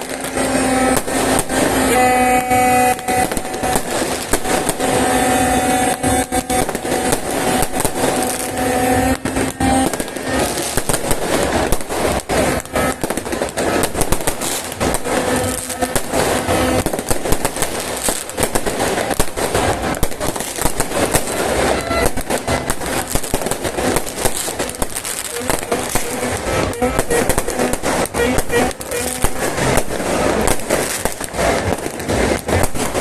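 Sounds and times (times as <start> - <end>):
held pitched tone: 0.0 - 13.9, 24.5 - 30.4
fireworks crackling and popping: 0.0 - 33.0.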